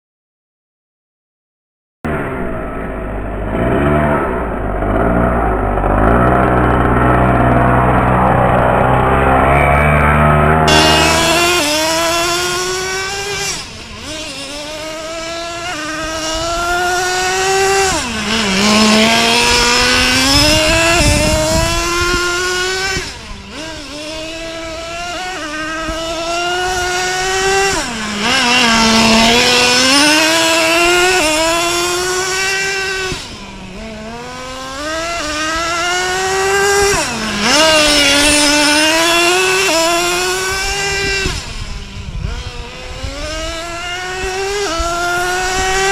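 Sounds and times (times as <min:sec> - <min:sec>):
small two-stroke engine buzzing: 0:02.1 - 0:45.9.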